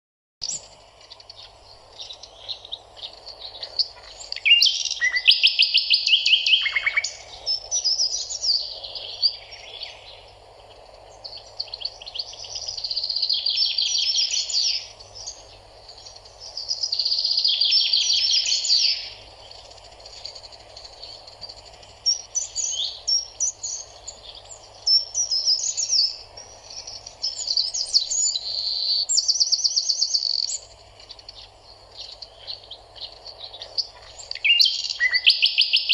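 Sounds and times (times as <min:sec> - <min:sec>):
songbirds trilling and chirping: 0:00.4 - 0:35.9
steady background hiss: 0:00.4 - 0:35.9.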